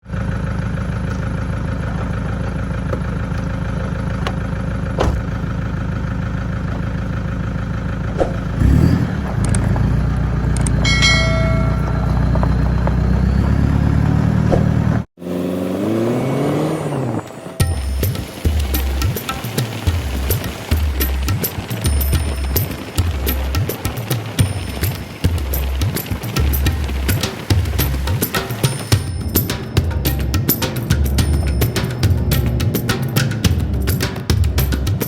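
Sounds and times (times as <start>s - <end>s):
vehicle engine droning: 0.0s - 35.0s
sound with rising and falling pitch: 10.8s - 28.0s.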